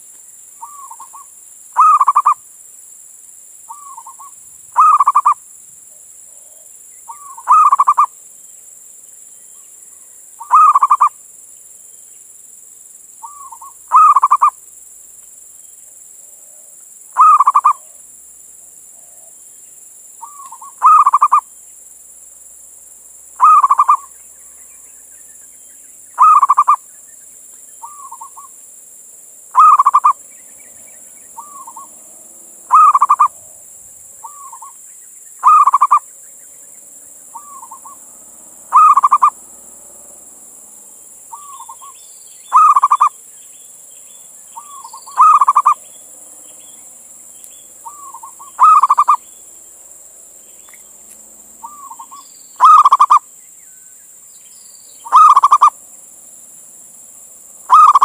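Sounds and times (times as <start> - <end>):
dove cooing: 0.6 - 2.4, 3.7 - 5.4, 6.3 - 8.1, 10.4 - 11.2, 13.2 - 14.6, 16.4 - 18.0, 20.2 - 21.4, 23.4 - 24.1, 26.2 - 26.8, 27.8 - 28.5, 29.5 - 33.6, 34.2 - 34.8, 35.4 - 36.0, 37.3 - 40.0, 41.3 - 43.2, 44.6 - 45.9, 47.8 - 49.3, 51.6 - 53.2, 55.0 - 55.8, 57.7 - 58.0.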